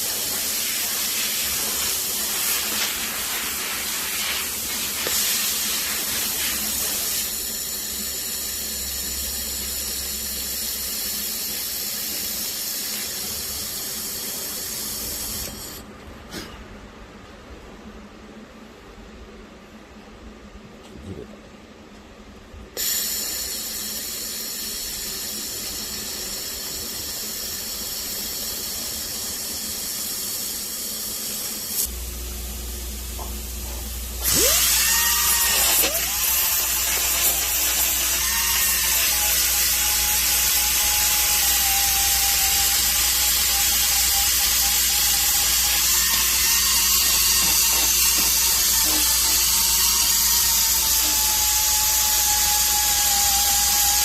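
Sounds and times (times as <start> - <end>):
steady hiss: 0.0 - 8.1
power tool whining: 34.2 - 54.0.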